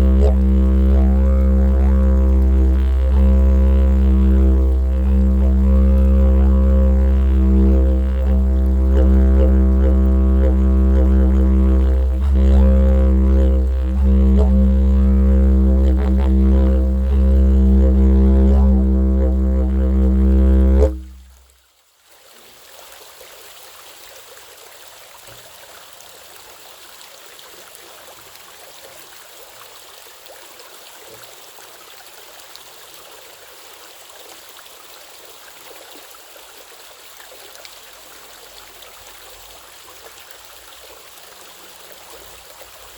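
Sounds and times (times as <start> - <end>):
didgeridoo drone: 0.0 - 21.4.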